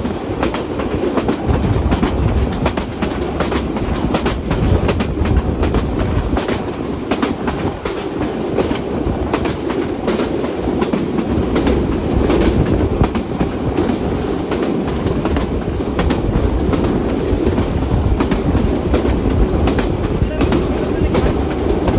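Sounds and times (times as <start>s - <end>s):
train wheels and air rushing: 0.0s - 21.9s
wheels clacking over rail joints: 0.0s - 21.9s.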